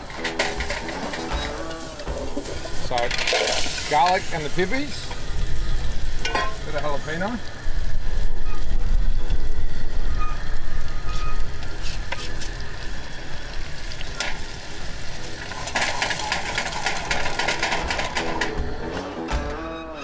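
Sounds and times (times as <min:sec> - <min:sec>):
guitar music: 0:00.0 - 0:02.9, 0:18.2 - 0:20.0
food sizzling in a pot: 0:00.0 - 0:18.9.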